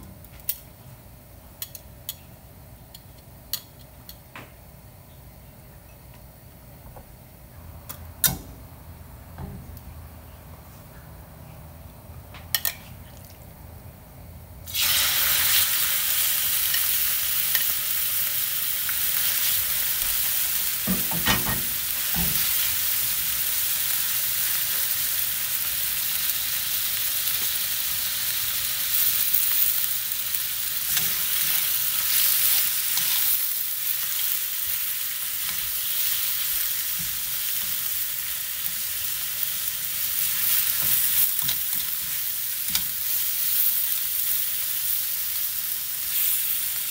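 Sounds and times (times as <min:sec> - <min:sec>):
beef sizzling in hot oil: 0:14.7 - 0:46.9.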